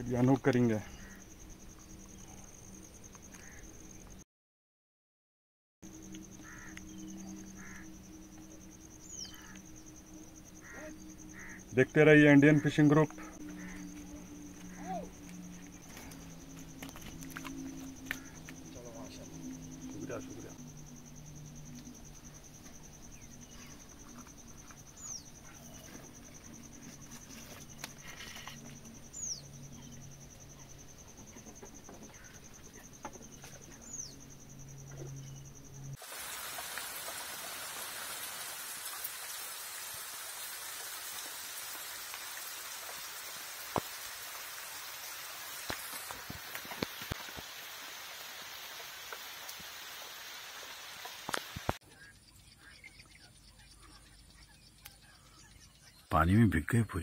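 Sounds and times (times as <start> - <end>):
high insect drone: 0.0 - 4.2, 5.8 - 52.8
heavy rain on a lake: 36.0 - 51.8.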